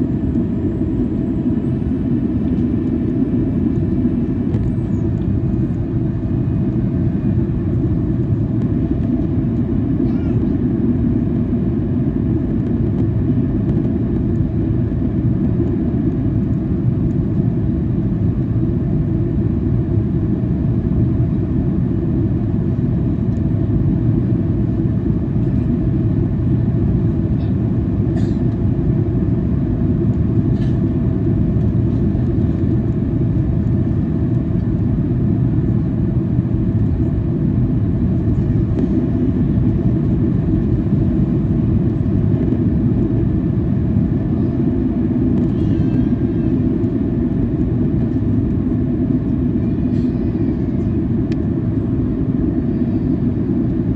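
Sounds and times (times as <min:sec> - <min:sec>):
airliner cabin drone: 0:00.0 - 0:53.9.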